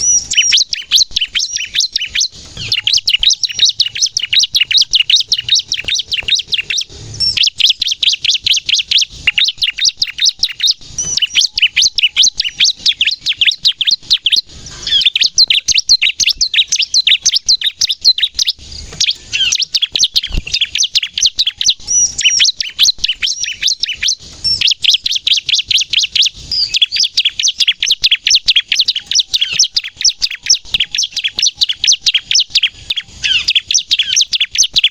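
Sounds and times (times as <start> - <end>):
bird singing rapid high chirps: 0.0 - 34.9.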